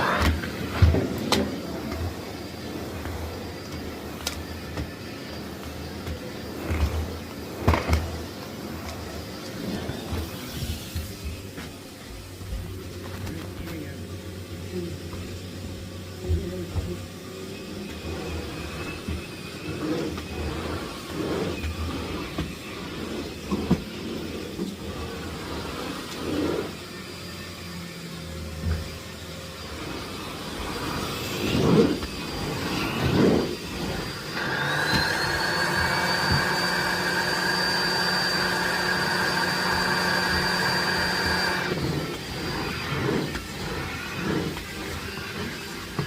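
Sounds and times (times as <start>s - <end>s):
vacuum motor high whine: 24.2s - 46.0s.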